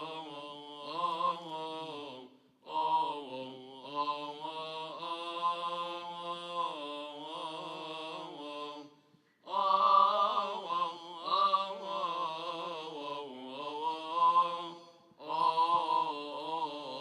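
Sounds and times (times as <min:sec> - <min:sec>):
man singing liturgical chant: 0:00.0 - 0:17.0.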